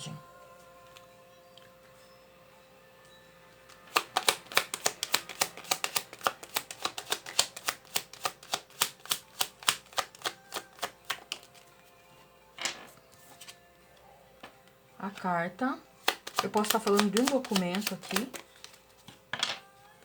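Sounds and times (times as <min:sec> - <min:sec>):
cards being shuffled: 0:03.7 - 0:11.7, 0:12.6 - 0:13.6, 0:16.0 - 0:19.7.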